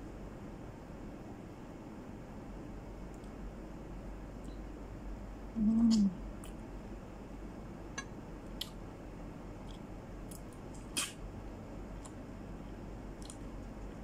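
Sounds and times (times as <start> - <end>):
low steady hum: 0.0 - 14.0
person chewing wetly: 13.2 - 13.5.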